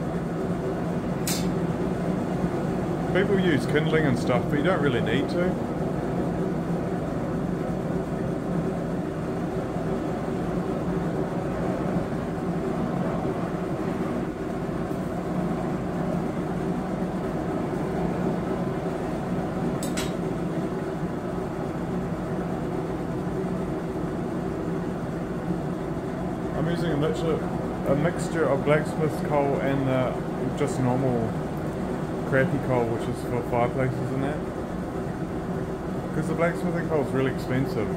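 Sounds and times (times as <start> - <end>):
electric air blower humming: 0.0 - 37.9
sharp click: 1.2 - 1.6, 19.8 - 20.2.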